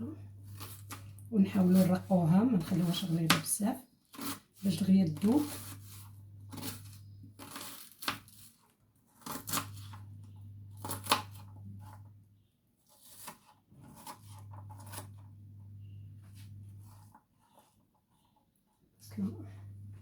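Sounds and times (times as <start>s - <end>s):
knife slicing onion: 4.1s - 8.6s, 9.2s - 10.1s, 10.8s - 12.0s.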